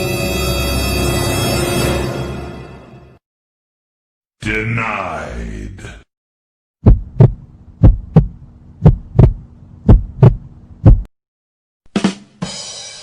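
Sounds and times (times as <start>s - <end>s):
heartbeat thumps: 6.8s - 11.1s.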